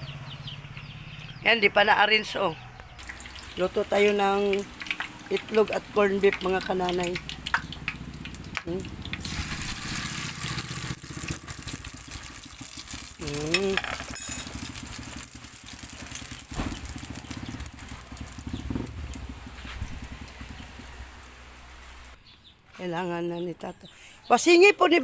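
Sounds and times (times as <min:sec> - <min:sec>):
egg mixture sizzling in oil: 0:03.0 - 0:22.2.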